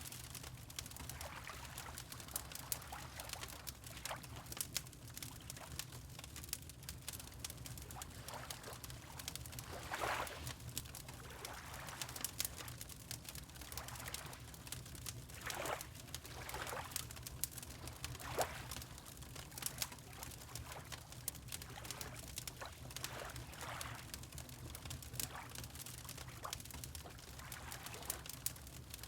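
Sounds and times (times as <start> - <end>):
water lapping: 1.1 - 4.4, 7.9 - 10.6, 15.4 - 16.9, 18.0 - 18.9, 21.6 - 24.2
wood fire crackling and popping: 16.2 - 20.6, 28.2 - 29.0.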